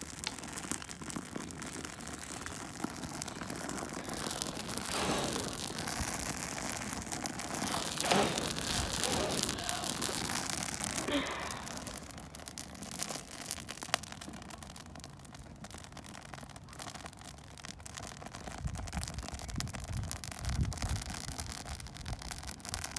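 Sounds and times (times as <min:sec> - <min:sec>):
bonfire crackling: 0:00.0 - 0:22.9
low rumbling: 0:07.3 - 0:12.2.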